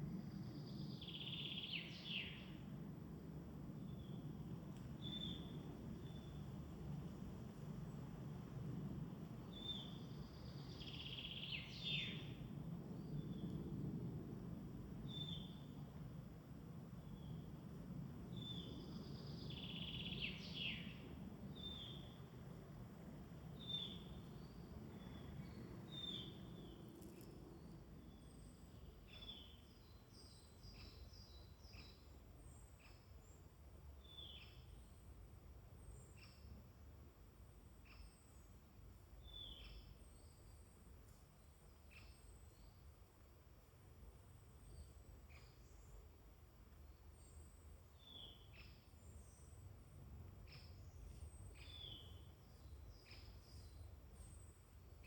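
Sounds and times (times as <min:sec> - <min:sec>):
low steady background rumble: 0:00.0 - 0:55.0.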